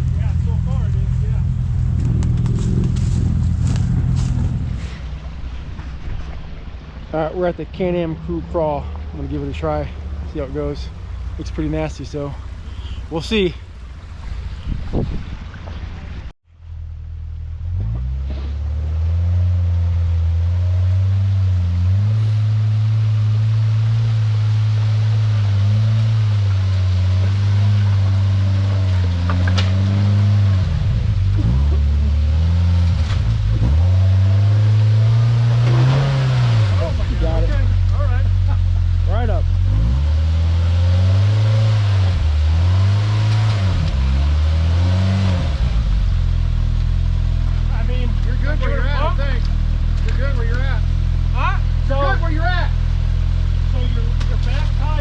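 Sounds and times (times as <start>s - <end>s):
off-road vehicle engine running: 0.0s - 55.0s.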